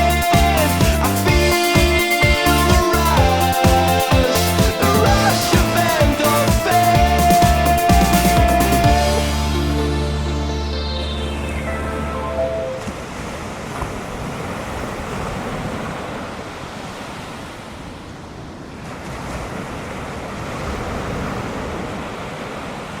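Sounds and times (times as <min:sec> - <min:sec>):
music: 0:00.0 - 0:12.8
ocean surf breaking: 0:00.0 - 0:23.0.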